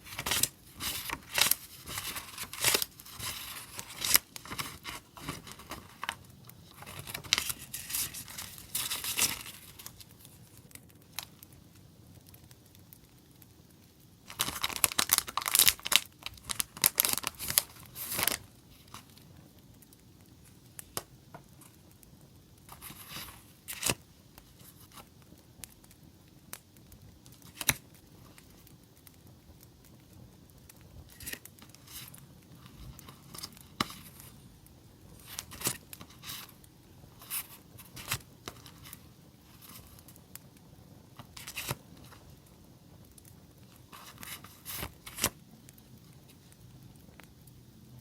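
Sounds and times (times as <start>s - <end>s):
paper crinkling and tearing: 0.0s - 10.4s, 14.3s - 19.2s, 22.7s - 25.1s, 27.4s - 27.8s, 31.1s - 34.4s, 35.1s - 36.6s, 37.2s - 40.2s, 41.2s - 42.2s, 43.8s - 45.4s
faint campfire crackle: 0.0s - 48.0s.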